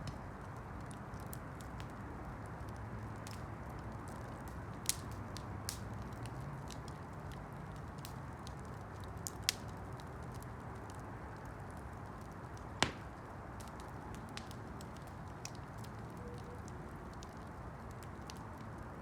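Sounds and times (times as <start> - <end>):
campfire burning: 0.0 - 19.0
fire crackles: 0.0 - 19.0
sharp fire pops: 12.5 - 15.9.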